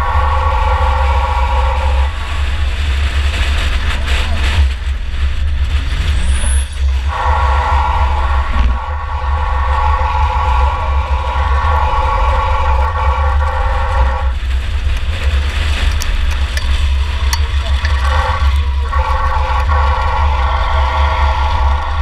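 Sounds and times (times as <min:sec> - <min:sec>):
car engine and road rumble: 0:00.0 - 0:22.0
sharp ticks: 0:13.4 - 0:20.2.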